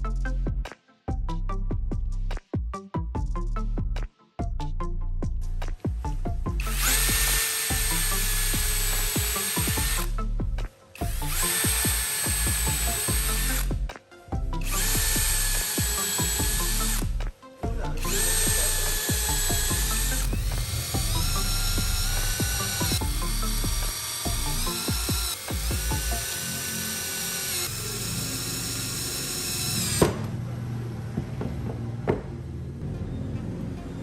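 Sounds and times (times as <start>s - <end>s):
background music with low beat: 0.0s - 34.0s
electric power tool running: 6.5s - 10.4s, 11.0s - 13.9s, 14.5s - 17.3s, 18.0s - 30.4s.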